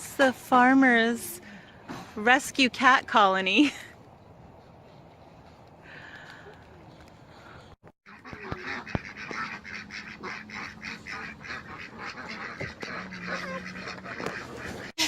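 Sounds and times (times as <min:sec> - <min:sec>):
flock of waterfowl chattering: 0:08.1 - 0:14.9.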